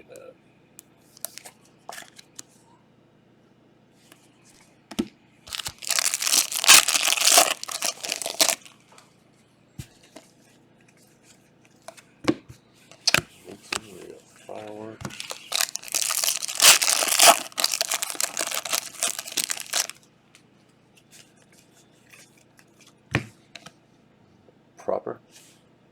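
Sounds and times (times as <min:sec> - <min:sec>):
wrapper tearing and crinkling: 0:05.5 - 0:08.7, 0:15.1 - 0:20.0.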